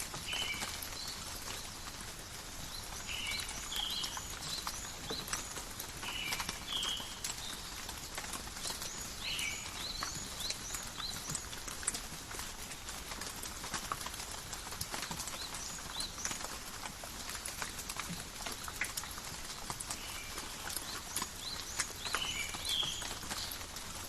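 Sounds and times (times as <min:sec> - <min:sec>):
birds chirping: 0:00.0 - 0:11.9, 0:17.6 - 0:24.0
rain dripping in forest: 0:00.0 - 0:24.0.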